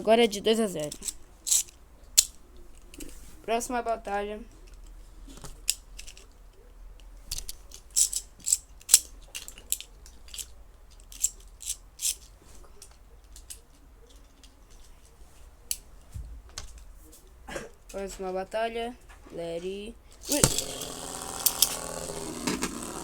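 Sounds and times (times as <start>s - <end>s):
spinning tops clacking together: 20.2s - 23.0s.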